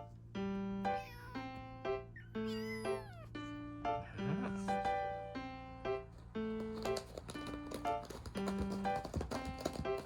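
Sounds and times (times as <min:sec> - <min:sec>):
kitten mewing: 0:00.8 - 0:01.6, 0:02.2 - 0:04.3.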